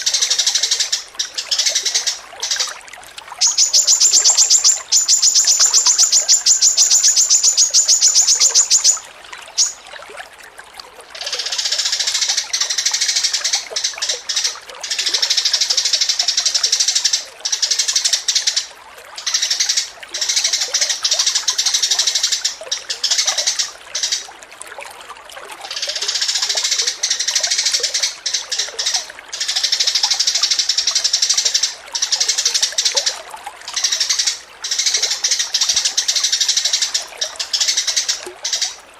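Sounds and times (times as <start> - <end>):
songbird singing: 3.4 - 9.9, 25.7 - 38.9.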